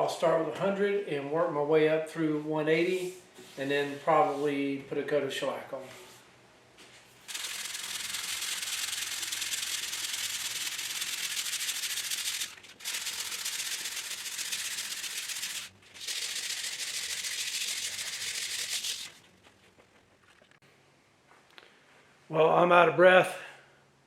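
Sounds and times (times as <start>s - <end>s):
sandpaper rubbing on wood: 7.3s - 19.2s.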